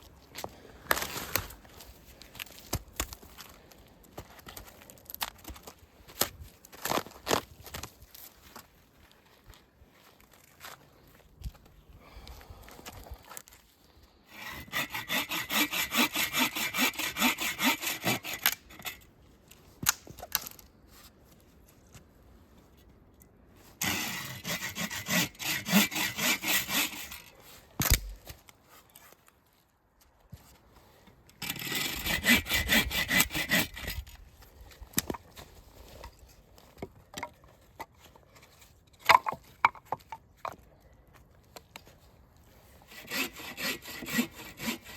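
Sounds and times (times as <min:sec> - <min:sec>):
hand saw cutting wood: 0:14.3 - 0:19.0, 0:23.8 - 0:28.2, 0:31.4 - 0:34.1, 0:42.6 - 0:44.9.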